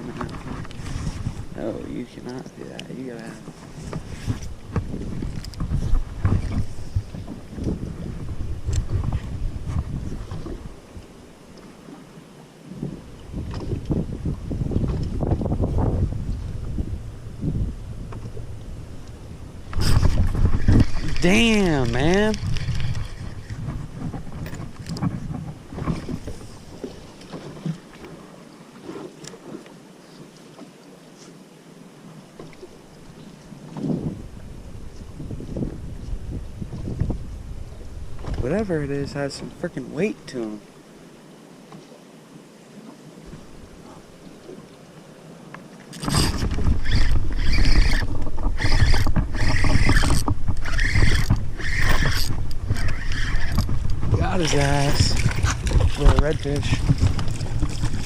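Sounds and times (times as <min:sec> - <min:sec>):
strong wind buffeting microphone: 0:00.0 - 0:11.2, 0:12.7 - 0:27.0, 0:33.7 - 0:39.6, 0:46.0 - 0:58.0.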